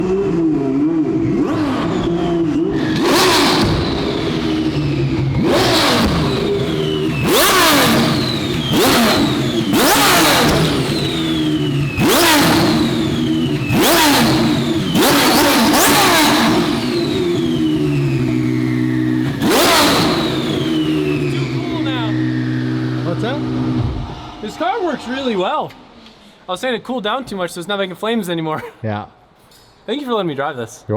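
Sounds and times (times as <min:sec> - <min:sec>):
car engine revving hard: 0:00.0 - 0:26.0
turbo whistle: 0:02.7 - 0:23.0.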